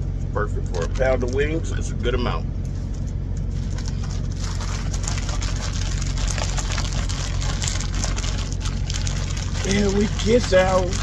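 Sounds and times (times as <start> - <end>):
irregular crackling patter: 2.6 - 11.0.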